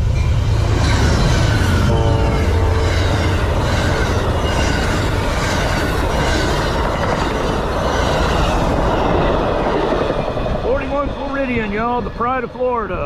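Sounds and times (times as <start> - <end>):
train wheels clattering over rails: 0.0 - 13.0
train horn blast: 1.6 - 3.9.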